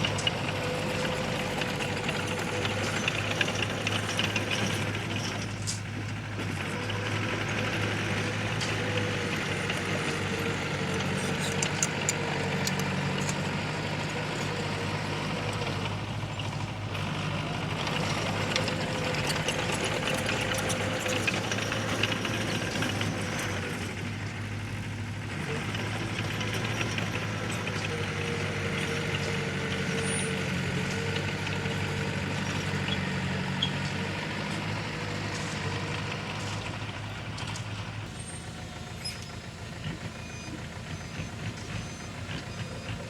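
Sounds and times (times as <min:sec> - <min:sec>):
clanks and rattles: 0:00.0 - 0:24.2
diesel engine running: 0:00.0 - 0:43.0.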